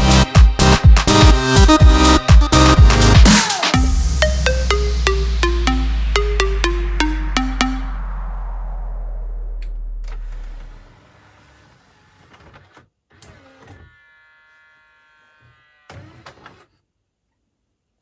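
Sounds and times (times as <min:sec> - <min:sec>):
loud low hum: 0:03.8 - 0:11.0.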